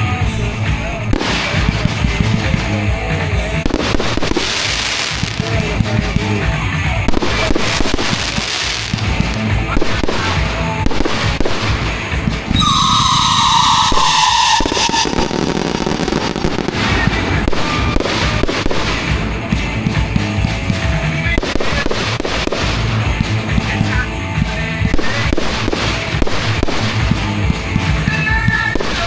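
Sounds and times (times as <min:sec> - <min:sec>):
fireworks popping and crackling: 0:00.0 - 0:29.0
music: 0:00.0 - 0:29.0
falling firework whistle: 0:12.5 - 0:18.5.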